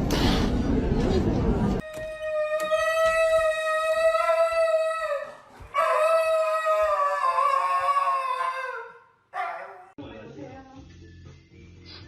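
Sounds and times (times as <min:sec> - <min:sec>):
dog howling: 0:01.8 - 0:09.9.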